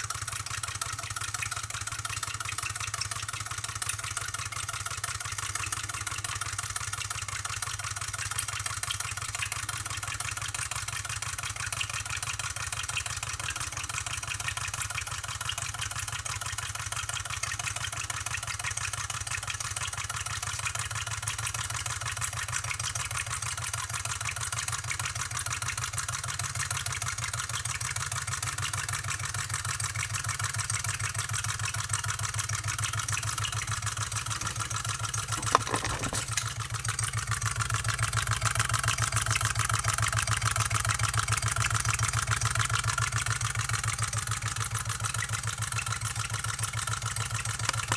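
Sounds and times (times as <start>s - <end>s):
engine mechanical clatter: 29.3s - 47.9s.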